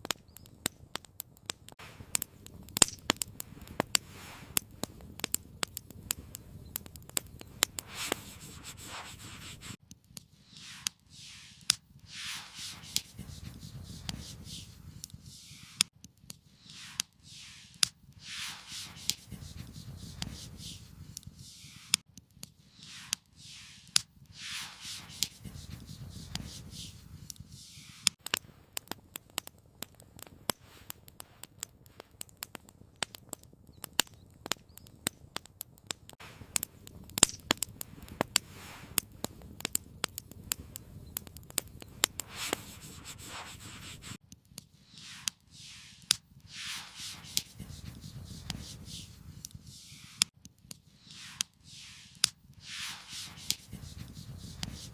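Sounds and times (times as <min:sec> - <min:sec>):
campfire crackling: 0:00.0 - 0:54.9
soft whooshing: 0:10.5 - 0:15.8, 0:16.6 - 0:22.0, 0:22.8 - 0:25.8, 0:45.0 - 0:50.2, 0:51.0 - 0:54.9.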